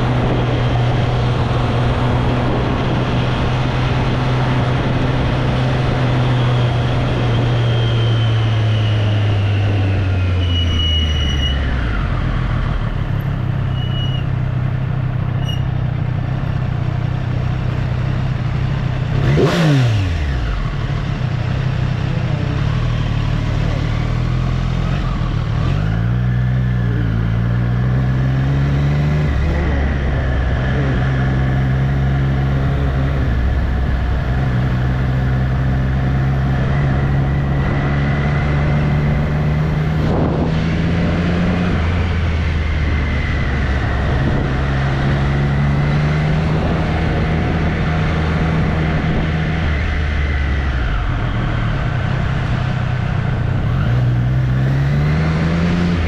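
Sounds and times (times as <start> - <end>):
motorcycle engine running: 11.7 - 54.7.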